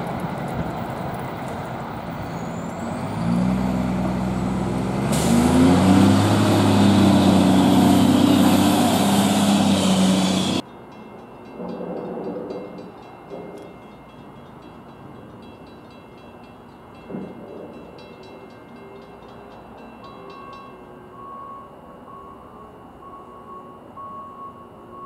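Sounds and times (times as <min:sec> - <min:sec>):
faint pulsing ringing tone: 0:20.1 - 0:25.0.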